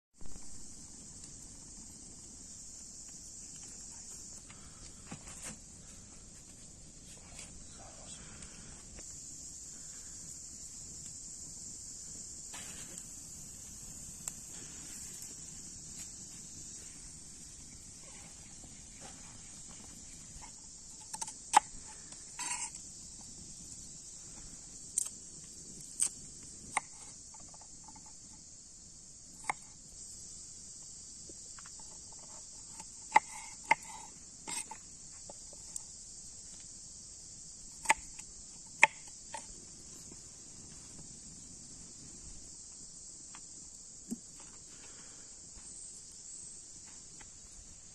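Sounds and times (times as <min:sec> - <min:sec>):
chorus of crickets: 0:00.2 - 0:47.9.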